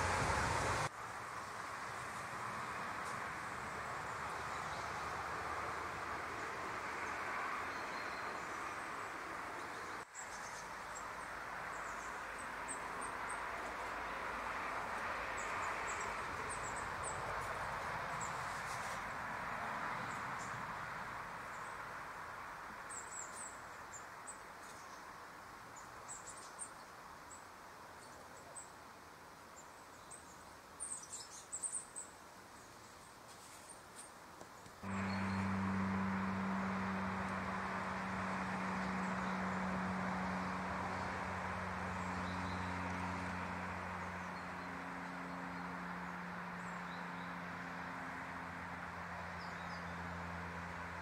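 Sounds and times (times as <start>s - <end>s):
steady outdoor rush: 0.0s - 23.2s, 34.4s - 51.0s.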